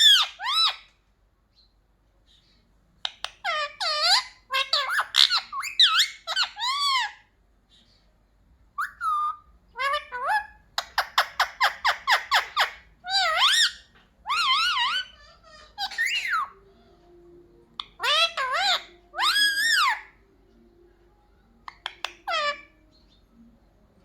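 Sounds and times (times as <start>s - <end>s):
parrot squawking and chattering: 0.0s - 1.0s, 2.3s - 7.9s, 8.7s - 16.7s, 17.7s - 20.3s, 21.5s - 23.2s.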